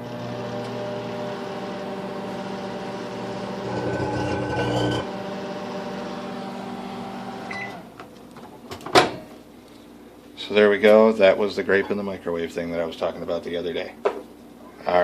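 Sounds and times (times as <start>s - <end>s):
microwave oven humming: 0.0s - 9.4s.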